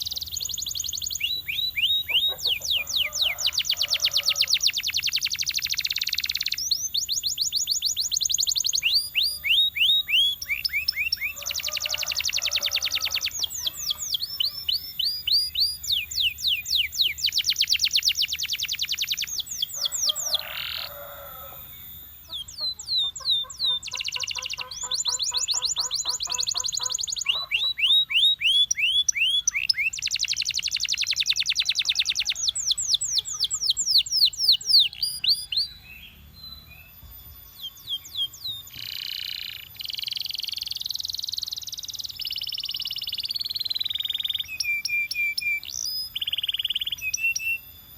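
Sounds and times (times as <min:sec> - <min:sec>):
canary singing trills: 0:00.0 - 0:47.9.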